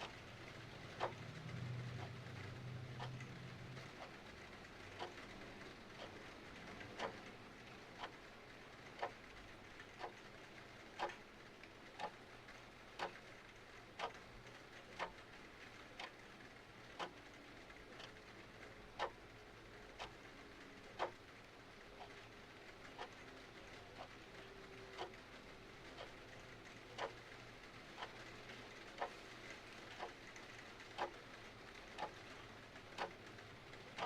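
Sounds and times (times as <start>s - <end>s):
mechanical clock ticking: 0.0s - 34.0s.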